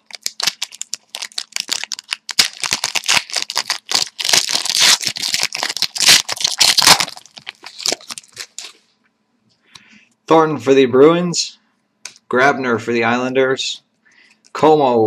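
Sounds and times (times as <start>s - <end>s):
wrapper crinkling and tearing: 0.0s - 8.8s.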